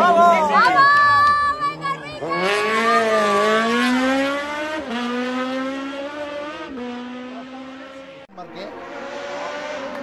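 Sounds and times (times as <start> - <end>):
car engine accelerating hard: 2.1 - 10.0.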